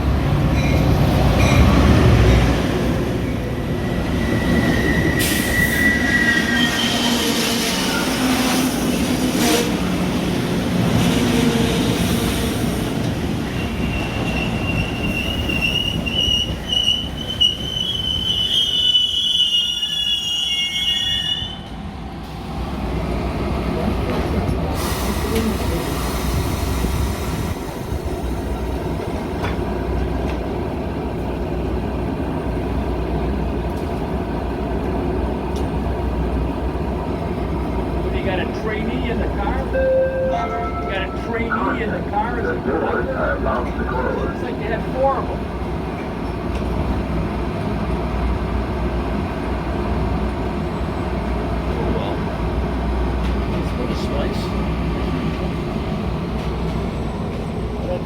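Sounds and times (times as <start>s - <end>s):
train rumbling: 0.0s - 19.9s, 21.4s - 58.0s
train wheel squeal: 3.8s - 8.5s, 13.5s - 21.7s.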